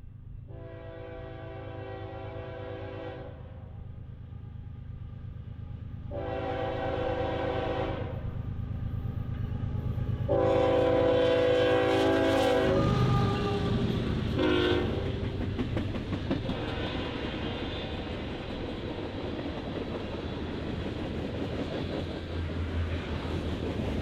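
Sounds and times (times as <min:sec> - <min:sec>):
train rumbling: 0:00.0 - 0:24.0
locomotive horn blasts: 0:00.5 - 0:03.4, 0:06.1 - 0:08.2, 0:10.3 - 0:13.8, 0:14.4 - 0:15.2, 0:16.5 - 0:17.2.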